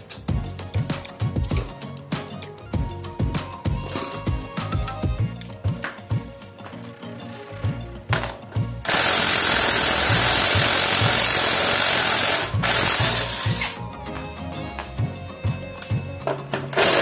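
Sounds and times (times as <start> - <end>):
background music with beat: 0.0 - 17.0
workshop tool hissing rush: 8.8 - 13.8, 16.7 - 17.0.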